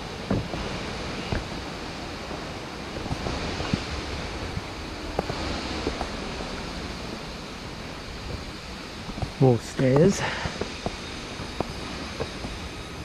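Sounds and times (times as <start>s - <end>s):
faint footsteps on steps: 0.0s - 1.6s, 8.2s - 12.6s.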